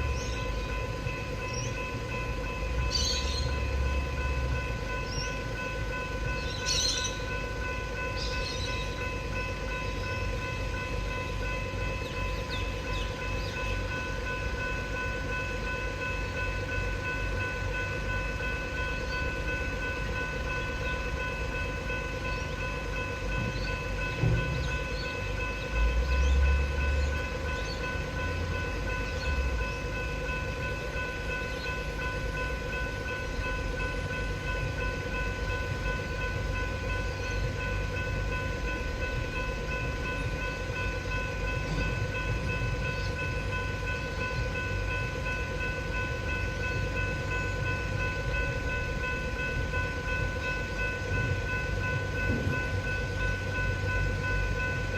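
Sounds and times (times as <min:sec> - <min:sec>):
train rumbling: 0:00.0 - 0:54.9
train wheel thumps: 0:23.4 - 0:24.7, 0:52.2 - 0:52.7.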